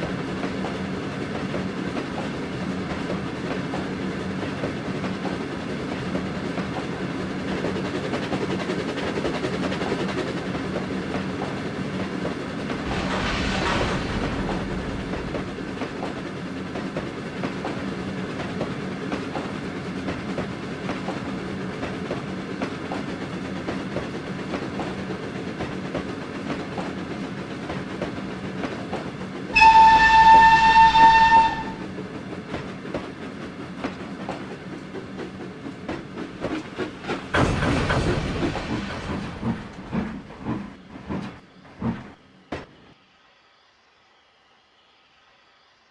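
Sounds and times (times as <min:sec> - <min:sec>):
train rumbling: 0:00.0 - 0:43.0
loud train whistle: 0:29.5 - 0:31.9.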